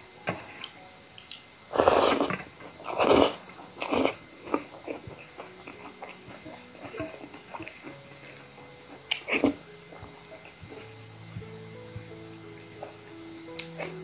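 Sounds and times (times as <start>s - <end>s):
loud chewing: 0.6s - 8.0s, 8.9s - 10.8s.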